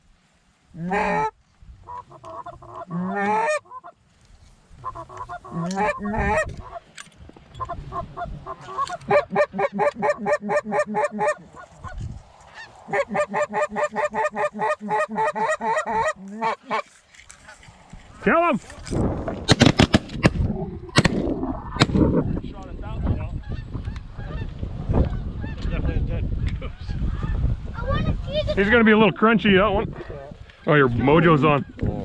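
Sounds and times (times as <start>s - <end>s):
goose honking: 0.8s - 1.3s, 1.9s - 4.0s, 4.8s - 6.9s, 7.6s - 16.9s
goose clucking: 0.8s - 4.0s, 4.8s - 6.9s, 7.6s - 17.6s.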